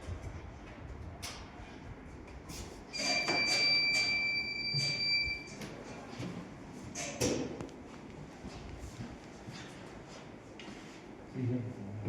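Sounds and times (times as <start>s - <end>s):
steady high machine tone: 2.9s - 5.6s.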